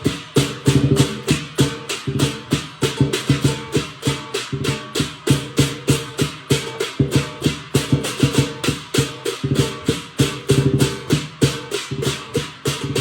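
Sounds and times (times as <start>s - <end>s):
cymbals clashing: 0.0s - 13.0s
drum strokes: 0.0s - 13.0s.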